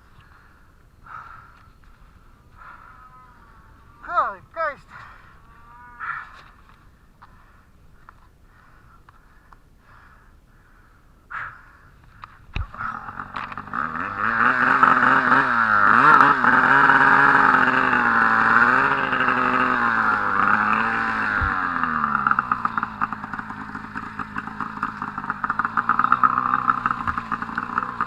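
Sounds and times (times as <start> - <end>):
snowmobile engine revving: 12.7 - 28.0.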